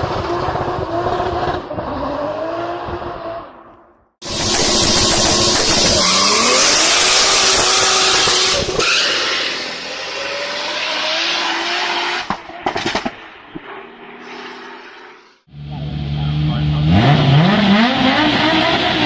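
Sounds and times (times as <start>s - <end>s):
car engine revving hard: 4.2s - 12.3s, 15.8s - 19.0s
sharp chattering pops: 12.3s - 13.7s.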